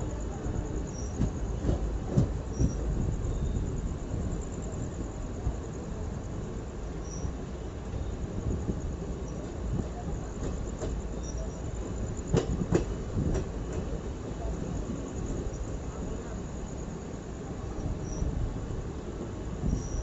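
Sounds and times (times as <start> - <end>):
train wheels rumbling on rails: 0.0 - 20.0
wheels clacking over rail joint: 10.2 - 14.0.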